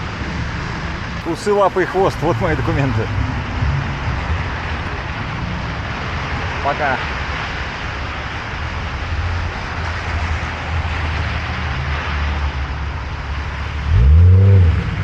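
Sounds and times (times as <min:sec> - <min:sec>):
engines idling and passing: 0:00.0 - 0:15.0
rain and tyres hissing on wet road: 0:00.0 - 0:15.0
vehicle engine pulling away: 0:13.6 - 0:15.0.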